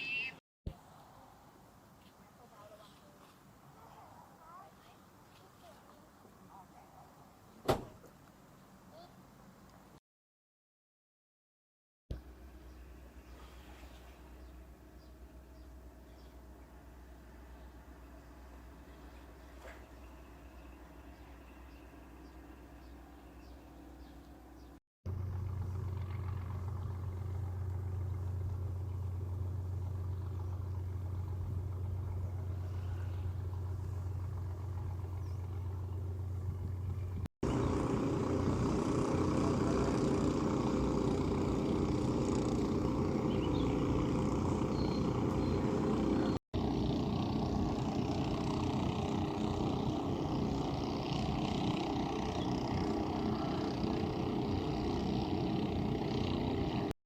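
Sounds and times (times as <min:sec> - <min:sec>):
vehicle engine rumble: 0:12.1 - 0:57.0.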